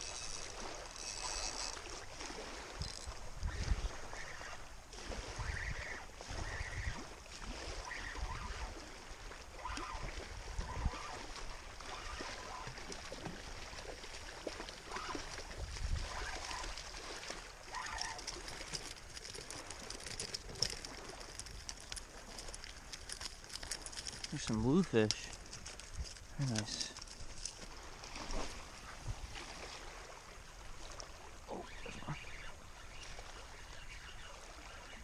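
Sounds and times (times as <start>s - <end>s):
water trickling and gurgling: 0.0s - 35.0s
wind gusting on microphone: 2.7s - 8.8s, 15.5s - 16.8s.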